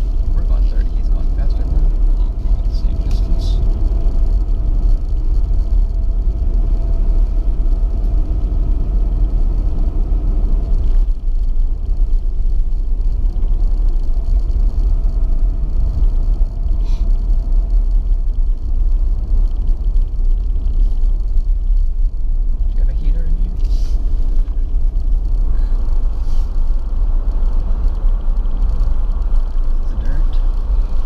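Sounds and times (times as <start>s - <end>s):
engine and tyre rumble: 0.0s - 31.0s
faint whine: 0.0s - 31.0s.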